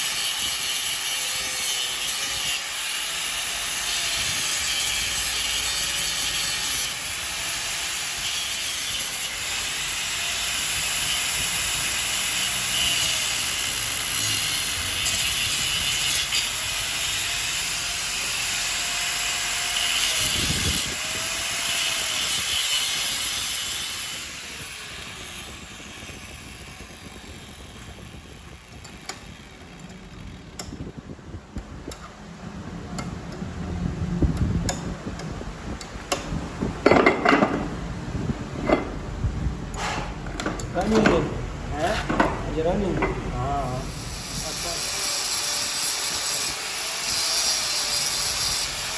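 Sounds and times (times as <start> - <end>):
machinery running with loud hiss: 2.9 - 30.1, 41.5 - 48.9.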